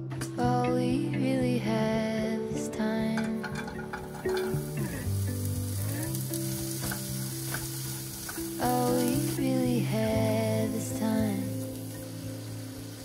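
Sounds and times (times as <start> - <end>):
soft background music: 0.0 - 13.0
carrots sizzling in hot oil: 3.5 - 13.0.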